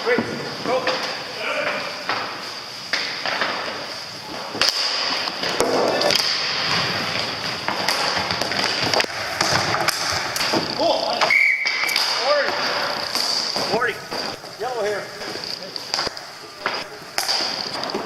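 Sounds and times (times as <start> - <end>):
steady high background noise: 0.0 - 18.0
hockey stick clacks: 0.8 - 3.8, 4.6 - 18.0.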